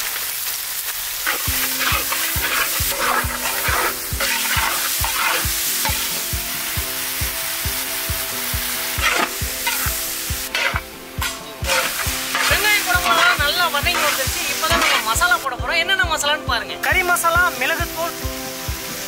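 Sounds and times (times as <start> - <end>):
vegetables sizzling in hot oil: 0.0 - 19.0
steel ladle stirring: 1.2 - 6.2, 9.0 - 15.2
background music with steady beat: 1.3 - 19.0.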